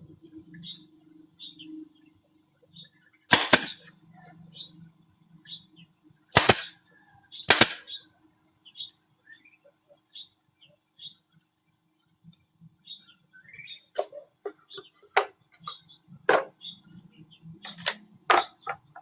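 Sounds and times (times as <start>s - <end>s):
hammer driving nails into wood: 3.3s - 3.8s, 6.4s - 6.7s, 7.5s - 7.8s.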